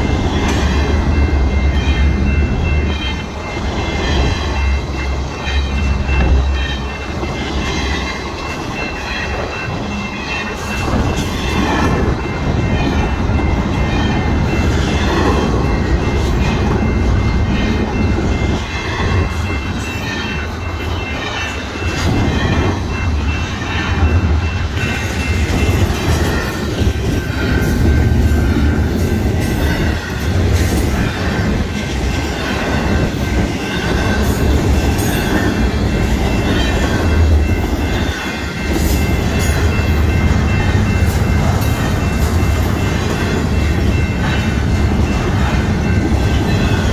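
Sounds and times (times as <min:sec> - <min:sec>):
crossing bell ringing: 0:00.0 - 0:46.9
freight train wheels rumbling: 0:00.0 - 0:46.9.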